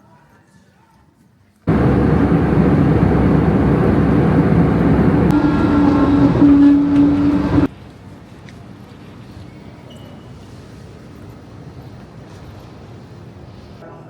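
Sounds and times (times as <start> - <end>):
steady droning tone: 1.7 - 7.7
road and engine rumble: 1.7 - 9.4.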